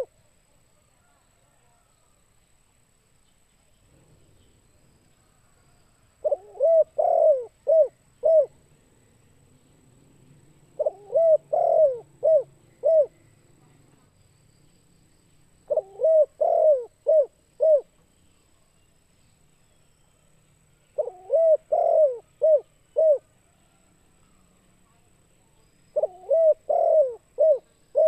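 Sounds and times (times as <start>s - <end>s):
dove cooing: 6.2s - 8.7s, 10.7s - 13.4s, 15.7s - 17.9s, 21.0s - 23.8s, 25.9s - 28.0s.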